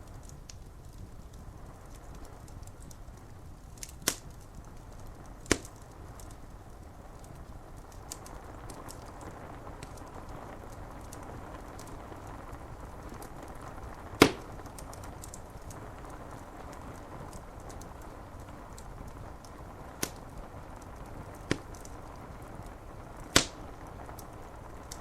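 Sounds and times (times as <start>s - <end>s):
rain on window glass: 0.0s - 25.0s
wood fire crackling: 0.0s - 25.0s
sharp pop from fire: 3.8s - 4.4s, 5.4s - 6.3s, 14.2s - 15.7s, 20.0s - 20.4s, 21.4s - 22.0s, 23.2s - 24.3s.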